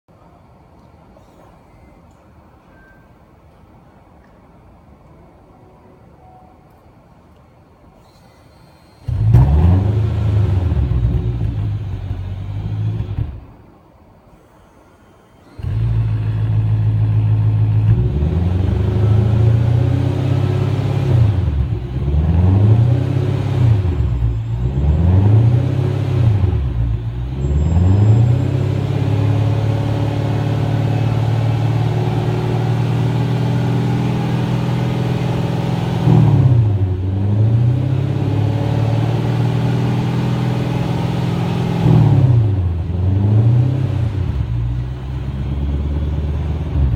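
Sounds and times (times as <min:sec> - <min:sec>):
car engine idling and revving: 0:08.9 - 0:13.7, 0:15.5 - 0:46.9.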